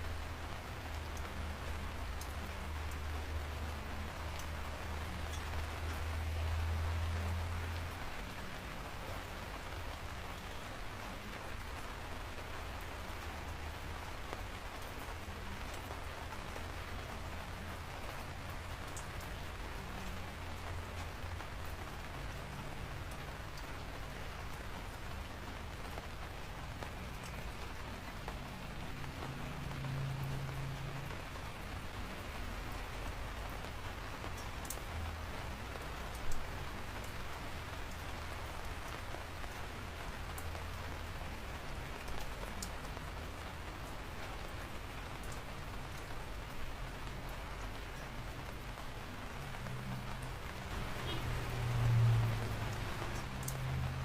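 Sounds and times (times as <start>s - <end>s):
steady rain falling: 0.0s - 54.0s
faint drip ticks: 0.5s - 54.0s.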